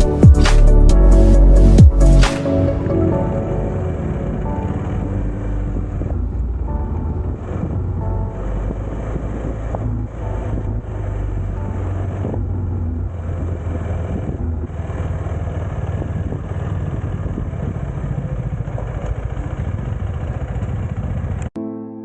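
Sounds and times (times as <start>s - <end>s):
motorcycle engine running: 5.0s - 21.5s.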